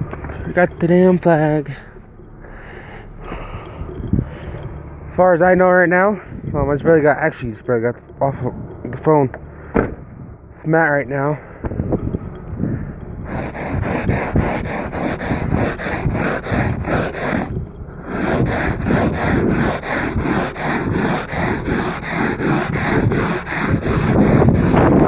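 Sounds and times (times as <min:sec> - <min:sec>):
scraping ice off windshield: 0:13.3 - 0:25.0.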